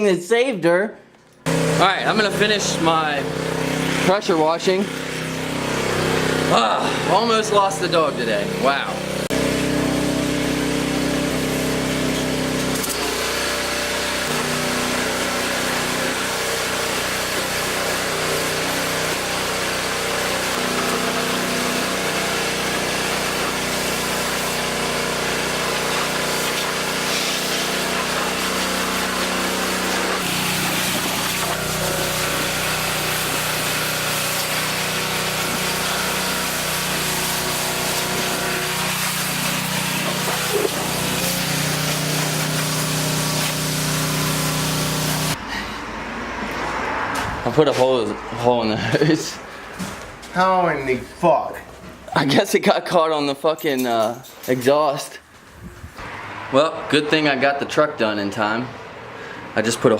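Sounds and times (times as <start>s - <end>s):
pressure washer machine hum: 1.4s - 47.3s
pressure washer water jet spraying: 1.5s - 45.4s.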